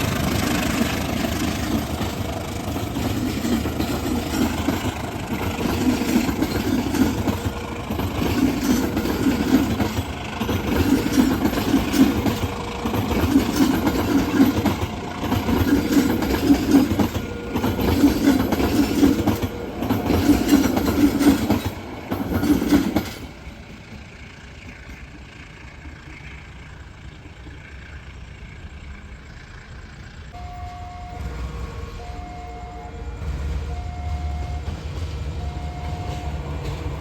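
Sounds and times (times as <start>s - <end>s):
train wheels clattering: 0.0s - 28.2s, 33.0s - 37.0s
steady train rumble: 0.0s - 37.0s
faint steady tones: 23.4s - 37.0s.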